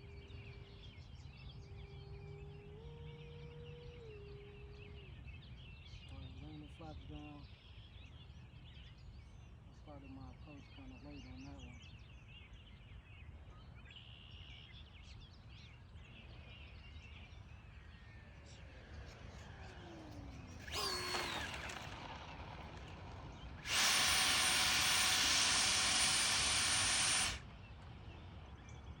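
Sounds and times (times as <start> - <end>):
electric ducted fan whine: 0.0 - 12.8, 15.8 - 29.0
faint bird chirps: 0.0 - 21.8
loud fan rush: 18.6 - 28.6.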